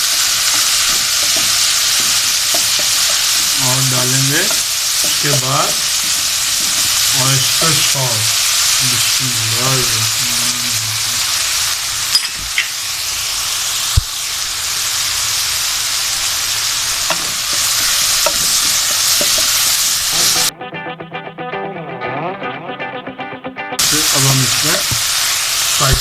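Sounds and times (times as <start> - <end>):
food sizzling in a pan: 0.0 - 20.5, 23.8 - 26.0
music: 20.1 - 25.0.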